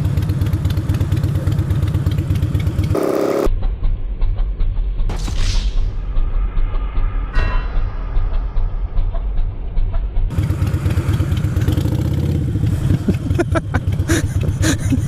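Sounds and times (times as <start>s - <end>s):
motorcycle engine running: 0.0s - 4.1s, 10.3s - 15.0s.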